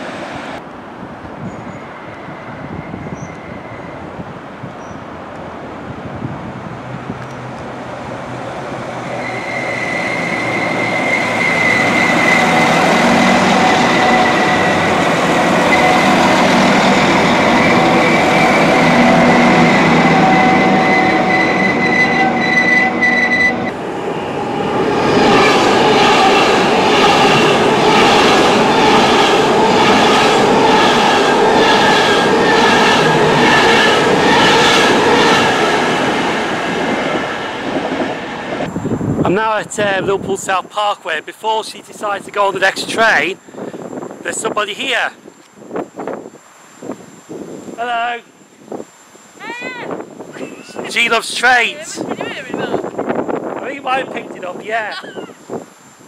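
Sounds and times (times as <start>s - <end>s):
diesel train humming and whining: 0.0s - 39.2s.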